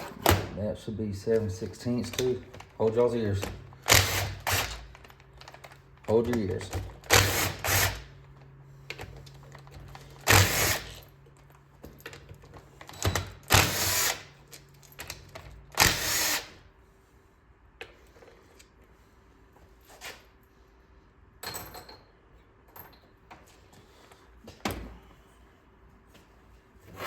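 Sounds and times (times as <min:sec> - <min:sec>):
impact wrench hammering bolts: 0:02.0 - 0:08.1, 0:09.7 - 0:11.1, 0:12.8 - 0:14.4, 0:15.0 - 0:16.5.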